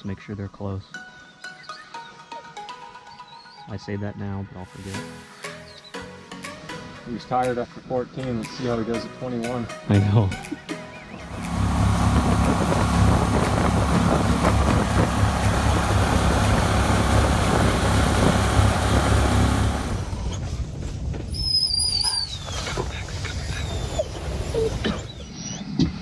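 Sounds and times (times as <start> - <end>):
boat motor rumbling: 11.2 - 20.4.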